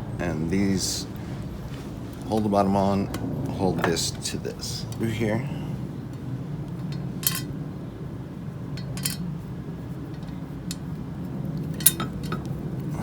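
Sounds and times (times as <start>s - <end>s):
steady low hum: 0.0s - 13.0s
small metal parts clinking: 6.8s - 7.6s, 8.8s - 9.3s, 10.1s - 12.6s.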